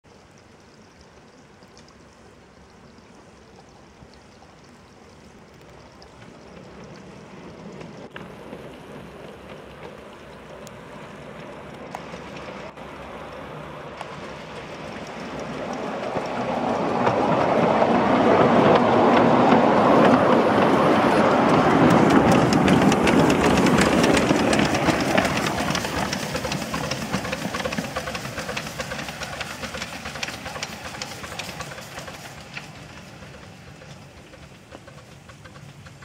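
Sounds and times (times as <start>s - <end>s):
faint clicks: 0.1s - 8.3s
miniature steam locomotive: 4.6s - 36.0s.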